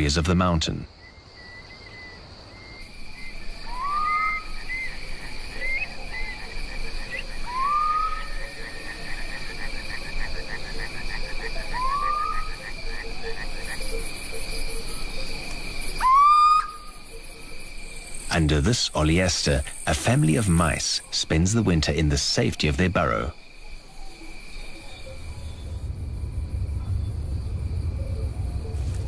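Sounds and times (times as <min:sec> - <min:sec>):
crickets chirping: 0:00.0 - 0:29.0
frogs croaking: 0:00.0 - 0:29.0
owl short rising call: 0:03.7 - 0:04.5, 0:07.5 - 0:08.4, 0:16.0 - 0:16.9.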